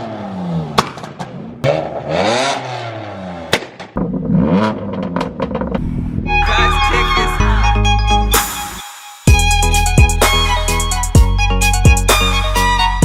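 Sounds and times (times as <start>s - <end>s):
car engines revving: 0.0s - 7.7s.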